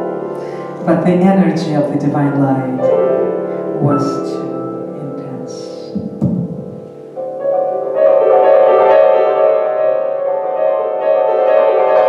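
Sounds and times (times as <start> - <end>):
piano playing slow chords: 0.0 - 12.0.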